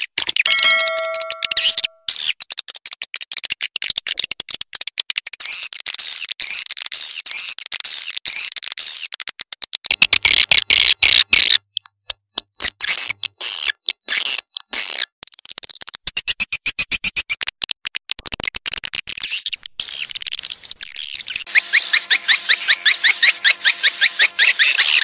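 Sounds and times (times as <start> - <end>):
steady electronic tone: 0.5 - 2.0.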